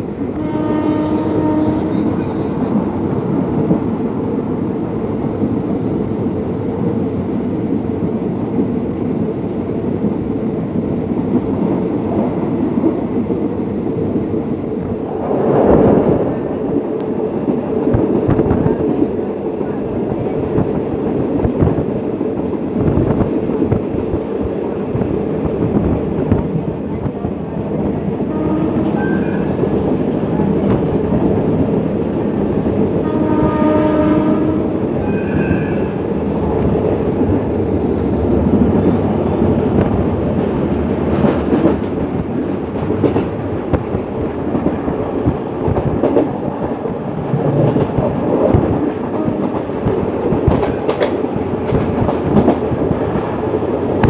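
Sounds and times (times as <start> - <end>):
locomotive horn: 0.3 - 2.2, 28.2 - 29.6, 33.0 - 35.8
train wheels clacking: 39.7 - 54.0.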